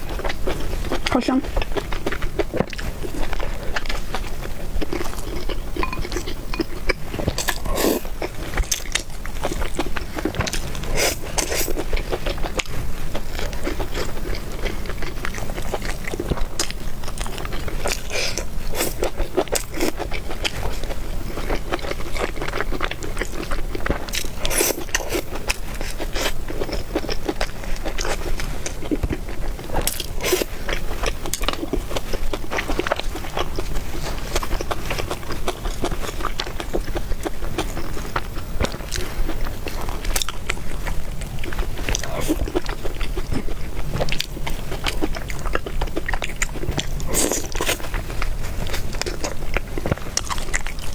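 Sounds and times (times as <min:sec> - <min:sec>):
person chewing food: 0:00.0 - 0:50.9.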